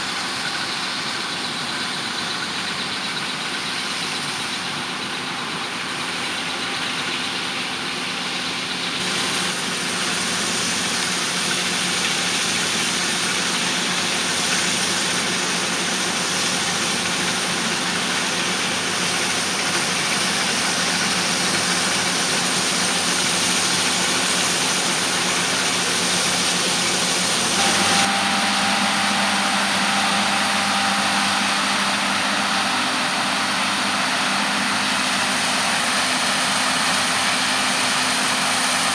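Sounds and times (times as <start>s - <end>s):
diesel engine drone: 0.0s - 38.9s
wide hiss: 9.0s - 28.1s.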